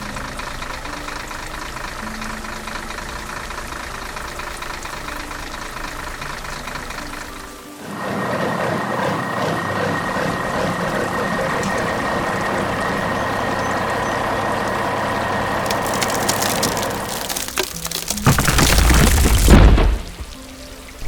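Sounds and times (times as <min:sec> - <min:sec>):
heavy truck engine rumbling: 0:00.0 - 0:20.4
faint crackling clicks: 0:15.6 - 0:20.4.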